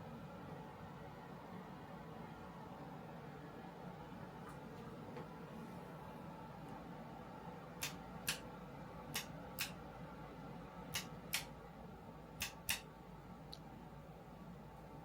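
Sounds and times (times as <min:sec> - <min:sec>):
faint steady hum: 0:00.0 - 0:15.0
sharp clicks in pairs: 0:07.8 - 0:08.4, 0:09.1 - 0:09.8, 0:10.9 - 0:11.5, 0:12.4 - 0:12.9.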